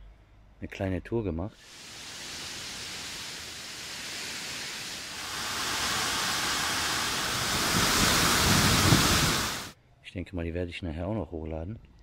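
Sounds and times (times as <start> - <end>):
waterfall rushing: 1.6 - 9.7.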